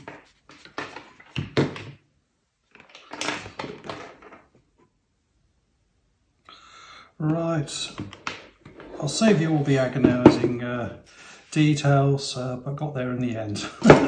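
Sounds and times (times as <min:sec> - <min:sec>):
plastic parts clicking and knocking: 0:02.7 - 0:04.5.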